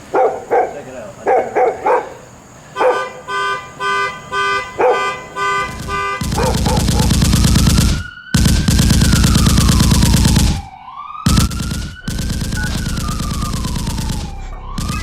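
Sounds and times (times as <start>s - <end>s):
dog barking: 0.0s - 3.3s, 4.6s - 5.4s, 6.3s - 7.2s
car alarm beeping: 2.7s - 15.0s
car alarm siren wailing: 2.7s - 15.0s.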